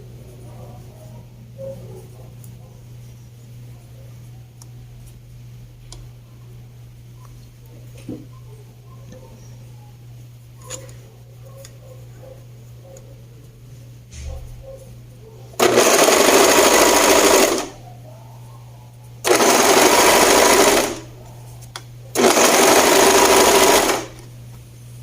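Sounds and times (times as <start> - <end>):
sewing machine stitching: 15.6 - 17.8, 19.2 - 21.1, 22.2 - 24.2.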